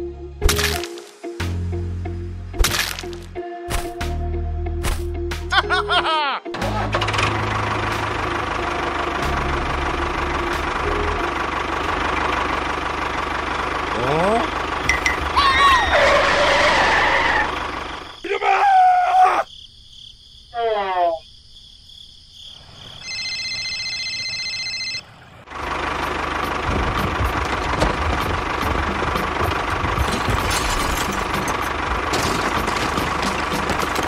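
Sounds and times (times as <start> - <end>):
tractor engine running: 6.6 - 18.2, 23.0 - 34.0
electronic phone ring tone: 23.0 - 25.0.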